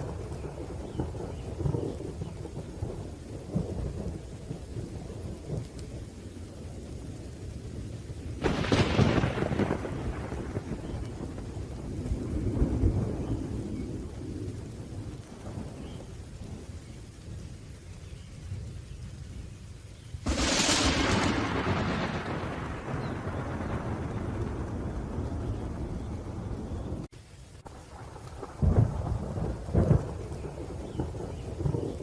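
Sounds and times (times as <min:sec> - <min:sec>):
sharp thunderclap: 0:00.0 - 0:05.7, 0:08.4 - 0:16.6, 0:20.2 - 0:27.1, 0:27.9 - 0:32.0
low rolling thunder: 0:00.0 - 0:32.0
steady rain: 0:00.0 - 0:32.0.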